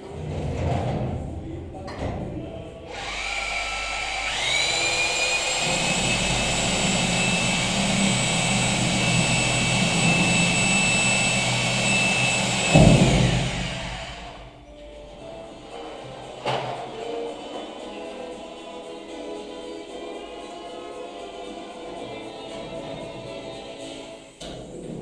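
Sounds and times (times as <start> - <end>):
power tool whining: 2.9 - 14.5
loud low thump: 12.7 - 14.1.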